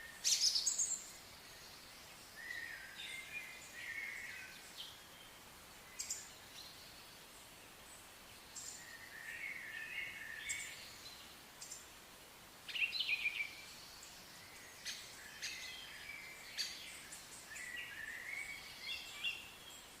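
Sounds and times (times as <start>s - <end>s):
faint steady hiss: 0.0s - 20.0s
songbirds singing and calling: 0.0s - 20.0s.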